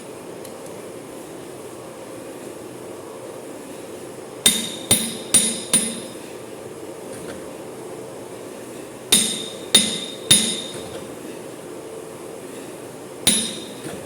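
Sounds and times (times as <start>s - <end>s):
steady background noise: 0.0s - 14.0s
hammer blows on metal: 9.1s - 11.0s, 13.3s - 14.0s.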